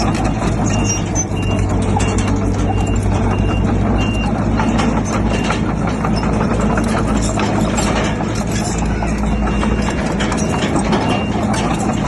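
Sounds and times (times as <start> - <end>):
heavy diesel machinery running: 0.0 - 12.0
reversing alarm beeps: 0.7 - 5.6, 9.0 - 11.8.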